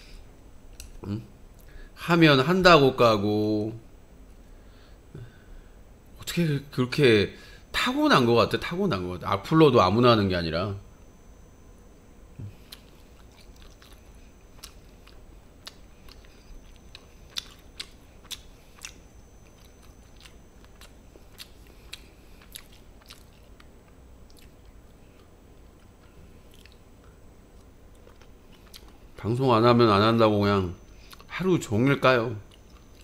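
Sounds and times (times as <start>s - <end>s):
person chewing food: 12.4s - 29.2s, 30.9s - 31.3s, 32.5s - 33.0s.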